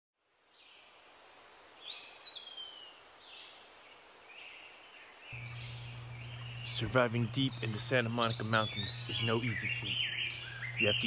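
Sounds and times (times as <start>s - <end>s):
birds chirping: 1.5s - 11.0s
rising and falling bird call: 4.4s - 11.0s.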